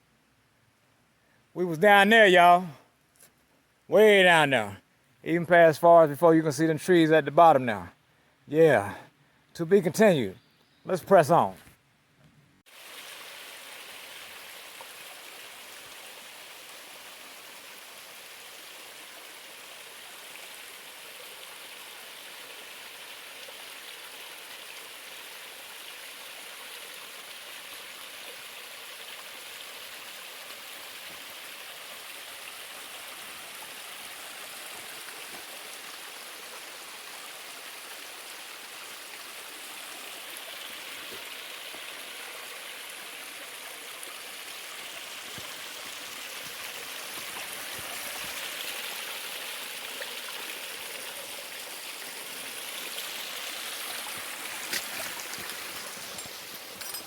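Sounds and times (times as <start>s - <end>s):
stream water rushing: 12.7s - 57.0s.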